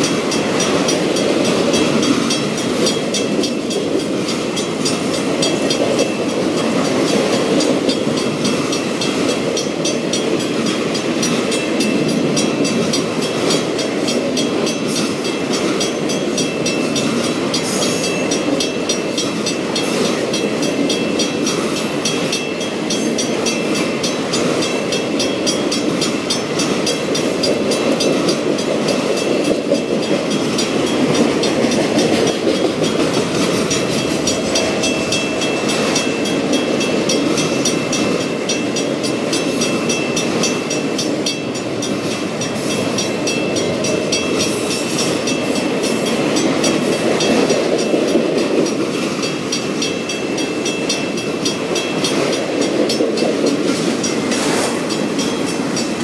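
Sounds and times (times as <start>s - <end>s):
steel wheels rumbling on rails: 0.0s - 56.0s.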